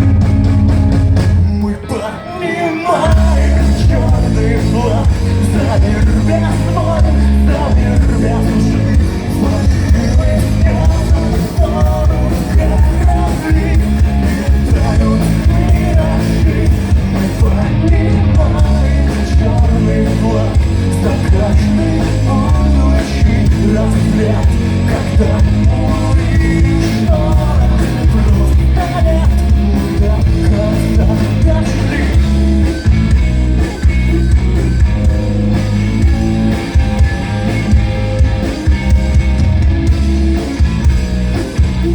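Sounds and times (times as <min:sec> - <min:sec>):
rock band playing live: 0:00.0 - 0:41.9
person singing: 0:01.4 - 0:32.4.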